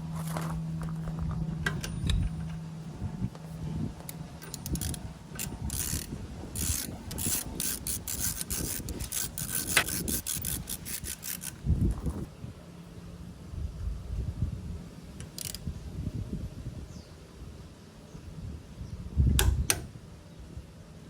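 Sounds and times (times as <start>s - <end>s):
metal scraping and rubbing: 0.0s - 12.3s
ratchet clicking: 4.0s - 11.6s, 15.2s - 15.6s.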